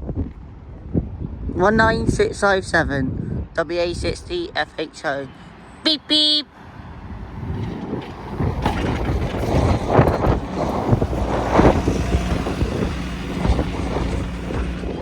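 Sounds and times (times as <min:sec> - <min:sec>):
wind noise on microphone: 0:00.0 - 0:04.7, 0:06.6 - 0:15.0
bus engine rumble: 0:03.9 - 0:15.0.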